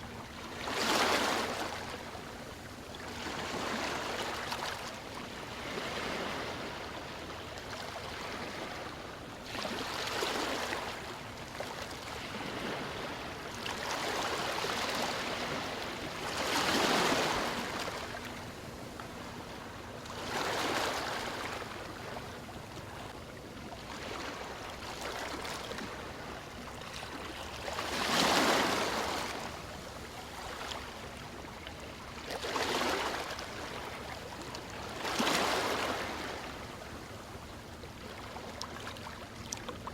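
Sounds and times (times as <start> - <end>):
ocean waves breaking: 9.6 - 23.2, 23.8 - 37.1.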